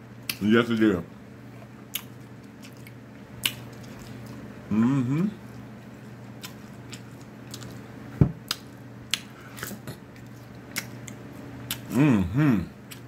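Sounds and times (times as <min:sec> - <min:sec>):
chewing and lip smacks: 0:00.2 - 0:00.8, 0:01.5 - 0:04.4, 0:05.5 - 0:11.9.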